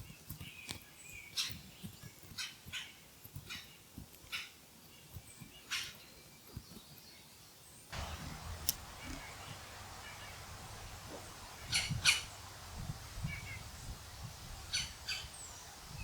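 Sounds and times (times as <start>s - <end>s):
young hawks begging screeches: 8.0s - 16.0s.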